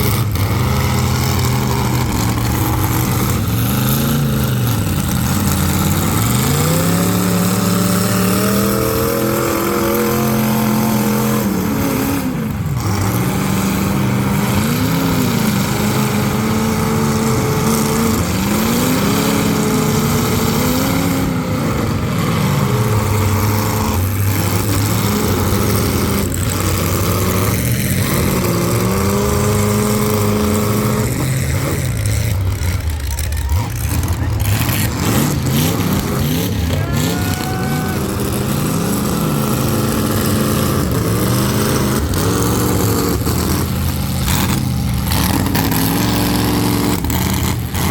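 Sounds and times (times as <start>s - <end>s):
car engines revving: 0.0s - 47.9s.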